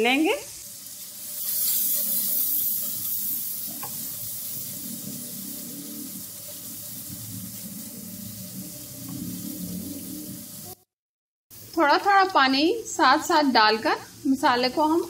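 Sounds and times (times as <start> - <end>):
spices sizzling in hot oil: 0.0 - 10.9, 11.5 - 15.0
spatula stirring in a wok: 0.7 - 10.7.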